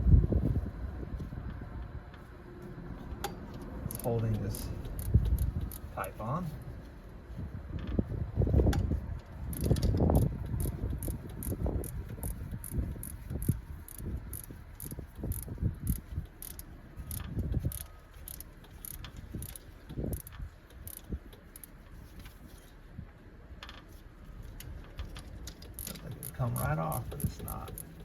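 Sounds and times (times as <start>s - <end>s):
socket wrench ratchet clicking: 3.9s - 4.1s, 4.8s - 5.9s, 9.5s - 21.7s, 25.6s - 28.0s.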